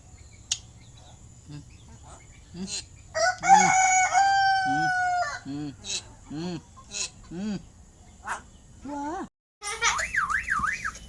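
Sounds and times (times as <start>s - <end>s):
rooster crowing: 3.1s - 5.5s.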